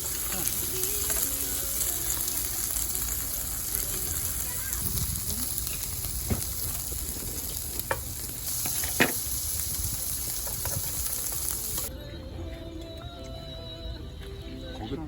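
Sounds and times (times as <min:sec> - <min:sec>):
food sizzling in a pan: 0:00.0 - 0:11.9.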